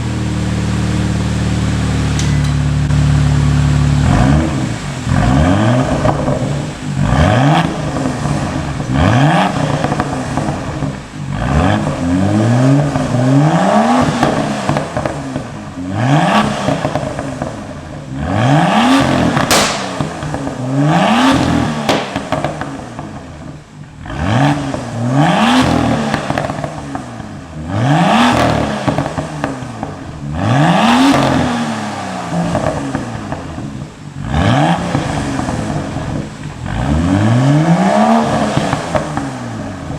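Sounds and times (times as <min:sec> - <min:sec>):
exhaust crackles and pops: 0:00.0 - 0:39.9
car engine revving hard: 0:02.9 - 0:39.9.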